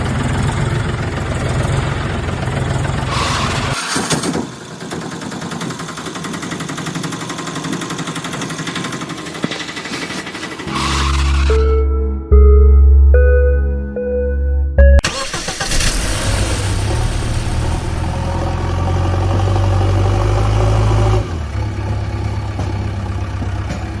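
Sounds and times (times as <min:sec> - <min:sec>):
vehicle engine starting and running: 0:00.0 - 0:11.9, 0:15.0 - 0:24.0
musical notes: 0:10.6 - 0:15.6
heavy bass: 0:10.7 - 0:15.1, 0:15.8 - 0:22.0.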